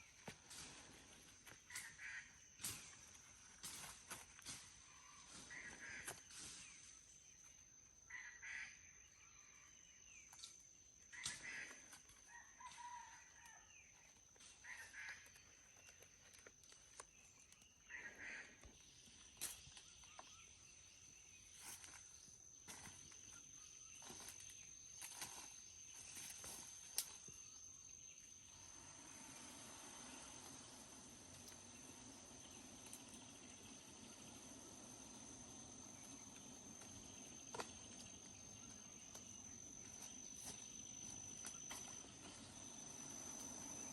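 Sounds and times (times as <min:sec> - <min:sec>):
faint bird calls: 0:00.0 - 0:04.2, 0:04.8 - 0:07.0, 0:08.0 - 0:09.7, 0:11.0 - 0:20.8.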